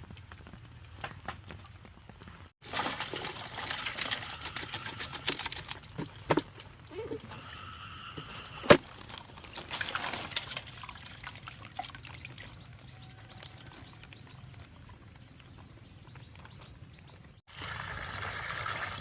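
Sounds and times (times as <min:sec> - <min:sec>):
water pouring and splashing: 0:02.6 - 0:06.9, 0:08.7 - 0:16.6, 0:17.2 - 0:19.0.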